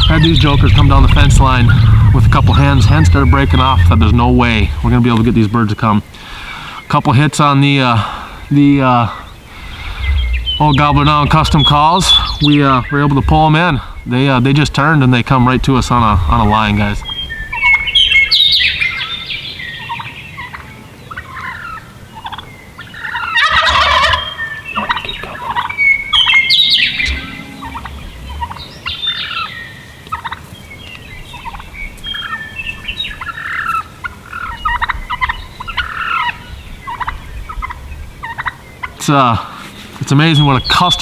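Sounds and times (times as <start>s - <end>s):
turkeys gobbling: 0.0s - 7.2s, 7.8s - 41.0s
short bird calls: 7.9s - 13.2s, 17.0s - 30.4s.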